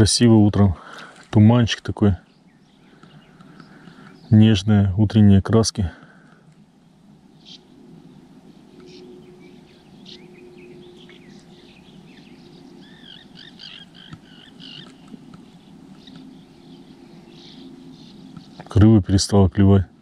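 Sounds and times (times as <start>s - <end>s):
faint low hum: 0.0s - 20.0s
small birds chirping: 0.0s - 20.0s
soft outdoor background noise: 0.0s - 20.0s
whistled bird song: 7.4s - 18.7s.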